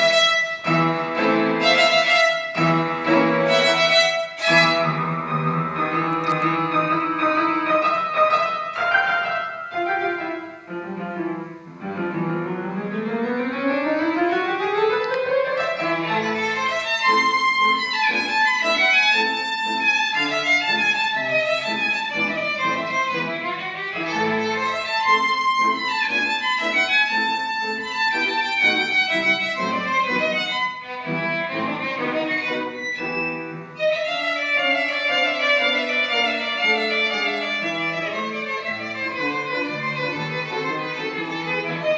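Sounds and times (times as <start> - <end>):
piano accompaniment: 0.0 - 41.9
violin playing classical piece: 0.0 - 41.9.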